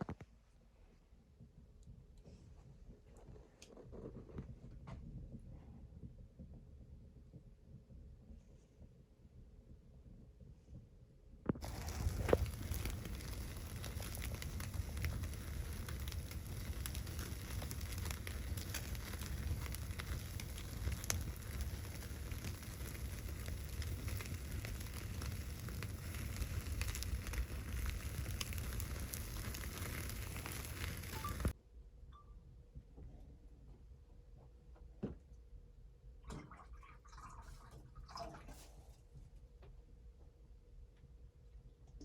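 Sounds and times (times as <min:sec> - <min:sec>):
wood fire crackling and popping: 0:11.5 - 0:31.6
steady low rumble: 0:11.6 - 0:31.6.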